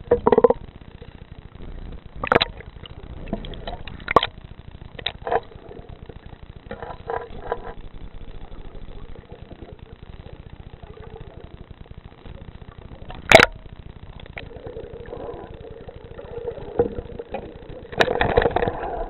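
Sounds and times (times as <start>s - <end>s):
muffled underwater knocks and clicks: 0.0s - 0.7s, 2.2s - 8.4s, 13.0s - 14.5s, 16.6s - 19.0s
steady low underwater rumble: 0.0s - 19.0s.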